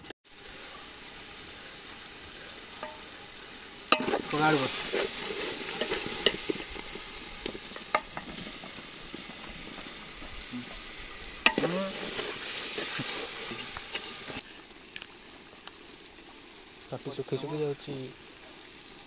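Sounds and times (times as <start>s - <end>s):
curry sizzling in a pot: 0.2s - 19.0s
spatula clinking on pot: 4.0s - 4.2s.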